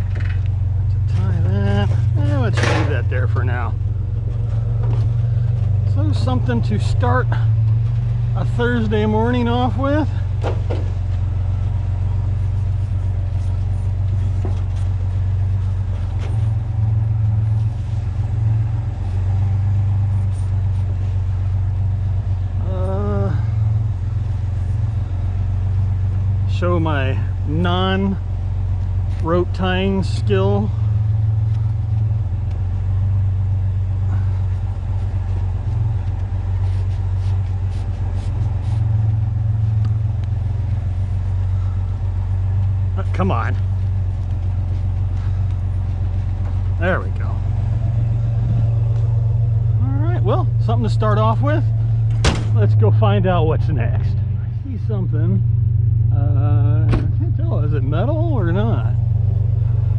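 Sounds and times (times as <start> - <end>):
vehicle engine idling: 0.0 - 59.9
rope rustling: 10.3 - 22.0, 30.8 - 43.0, 43.6 - 46.8.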